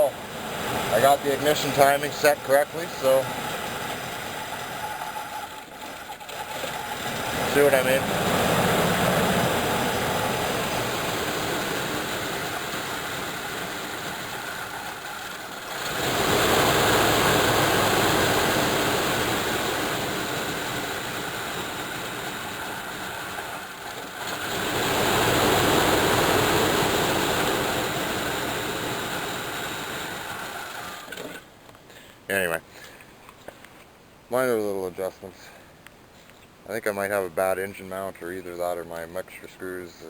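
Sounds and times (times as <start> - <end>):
car engine idling rough and revving: 0.0 - 31.4.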